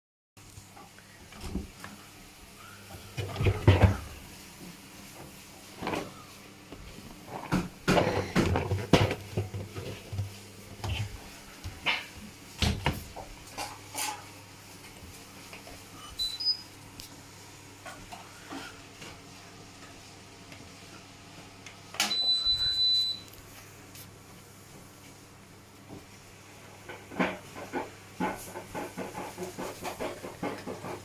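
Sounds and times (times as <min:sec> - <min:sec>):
long steady beep: 0:16.1 - 0:16.6, 0:22.0 - 0:23.3.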